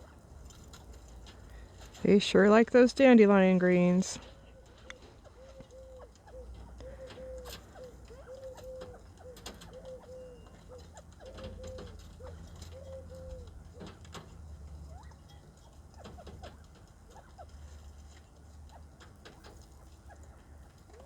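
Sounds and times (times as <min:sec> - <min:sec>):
bird cooing: 0:04.3 - 0:18.0, 0:18.6 - 0:21.0.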